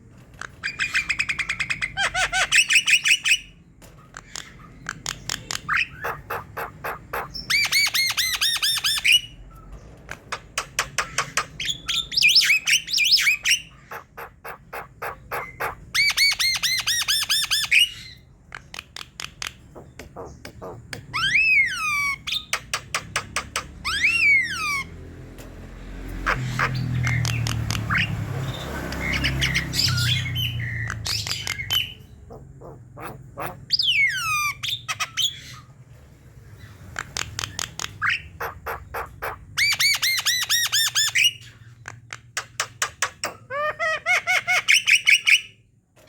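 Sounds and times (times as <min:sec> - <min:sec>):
bird rattling and chattering song: 0:00.0 - 0:24.8, 0:36.7 - 0:43.5.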